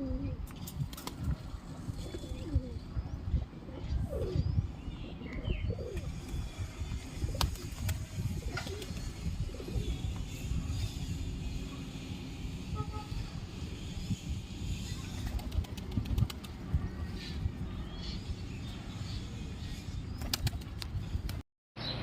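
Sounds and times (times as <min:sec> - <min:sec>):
pigeons flapping wings: 0:00.6 - 0:01.4, 0:07.2 - 0:09.2, 0:15.1 - 0:16.8, 0:20.2 - 0:21.4.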